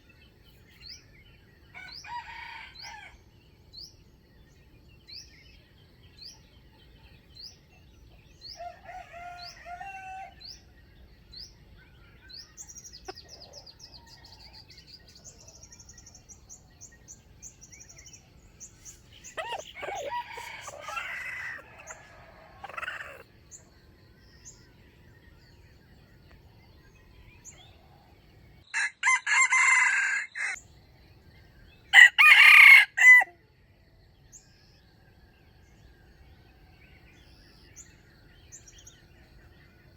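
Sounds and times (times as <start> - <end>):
rooster crowing: 1.8 - 3.2, 8.6 - 10.5, 19.3 - 23.2, 28.7 - 30.6, 31.9 - 33.4
small bird chirping: 10.5 - 28.7.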